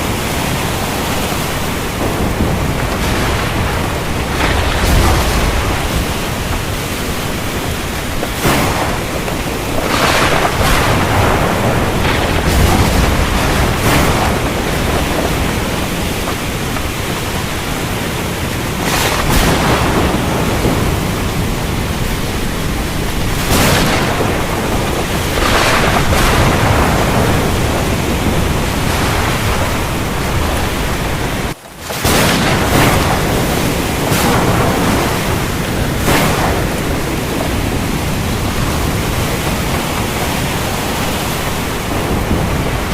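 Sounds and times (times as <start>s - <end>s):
heavy rain: 0.0s - 42.9s
thunder: 0.0s - 42.9s.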